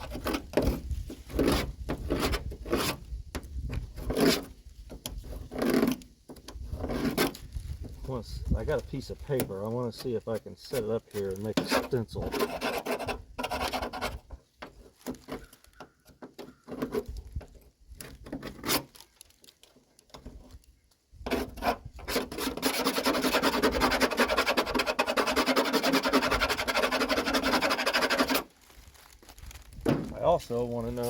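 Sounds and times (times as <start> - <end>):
rapid rubbing and scraping: 9.8 - 15.4, 21.3 - 28.5.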